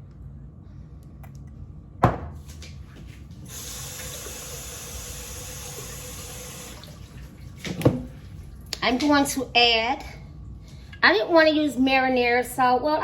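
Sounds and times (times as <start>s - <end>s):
tap water running into sink: 3.5s - 8.1s.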